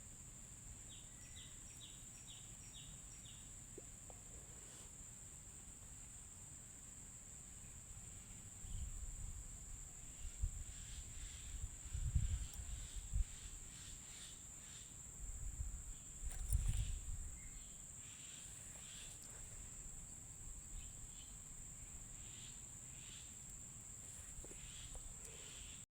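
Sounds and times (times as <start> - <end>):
crickets droning: 0.0 - 25.9.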